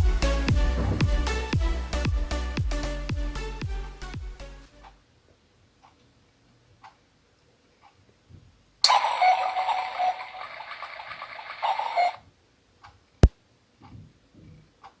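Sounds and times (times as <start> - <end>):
clock ticking faintly: 6.8 - 7.0, 12.8 - 15.0.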